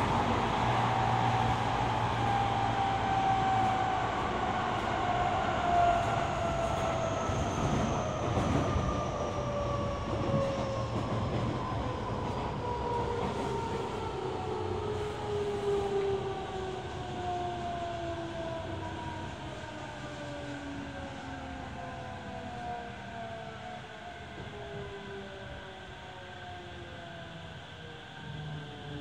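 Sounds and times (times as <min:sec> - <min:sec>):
train wheels rumbling on rails: 0:00.0 - 0:21.2.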